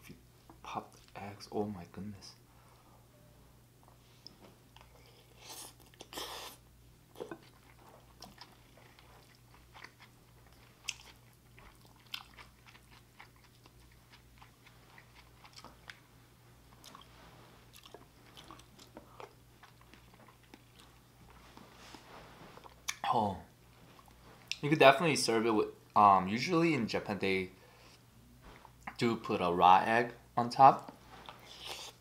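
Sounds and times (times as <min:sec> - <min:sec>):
low electrical hum: 0:00.0 - 0:32.0
person chewing food: 0:04.7 - 0:23.1, 0:31.2 - 0:32.0.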